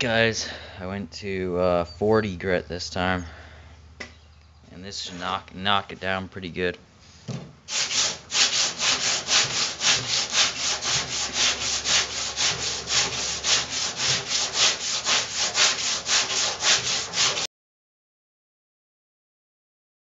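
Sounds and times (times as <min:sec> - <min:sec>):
sandpaper rasping on metal: 0:07.7 - 0:17.5.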